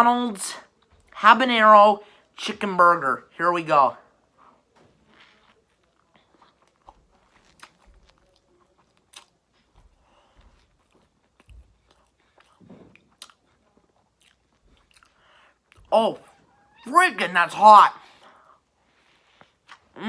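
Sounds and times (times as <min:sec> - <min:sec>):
faint crunchy chewing: 0:04.3 - 0:16.6, 0:18.2 - 0:20.0.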